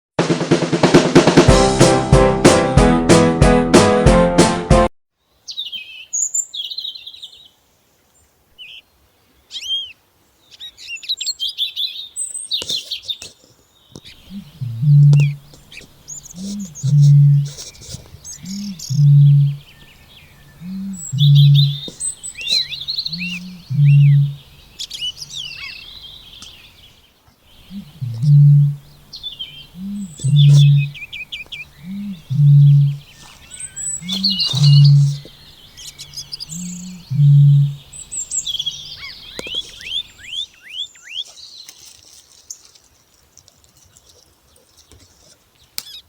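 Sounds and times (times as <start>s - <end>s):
bittern booming: 0.2s - 4.0s, 29.9s - 31.0s, 32.0s - 33.0s, 34.2s - 35.3s
songbirds chirping and trilling: 5.2s - 46.0s.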